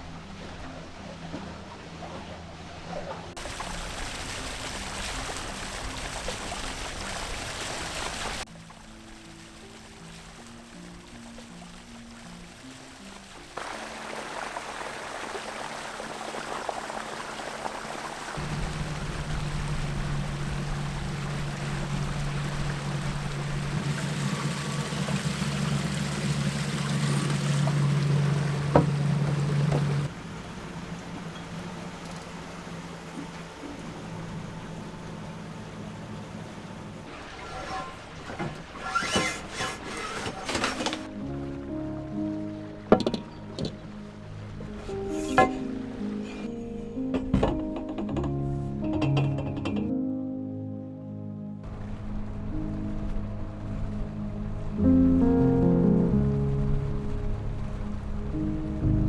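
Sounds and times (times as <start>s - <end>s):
water rushing along boat hull: 0.0s - 50.0s, 51.6s - 59.0s
steady low hum: 18.4s - 37.1s.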